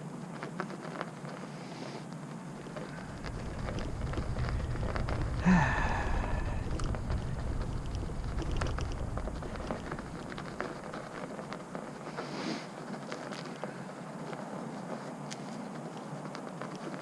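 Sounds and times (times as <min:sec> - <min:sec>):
icy snow crunching: 0:02.3 - 0:17.0
low rumble: 0:02.8 - 0:11.9.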